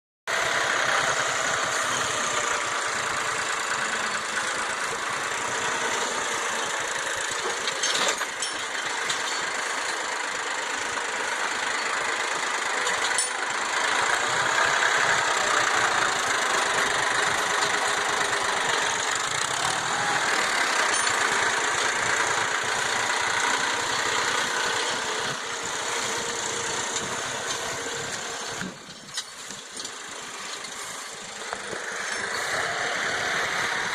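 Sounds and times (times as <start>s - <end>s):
tractor engine running: 0.3s - 33.9s.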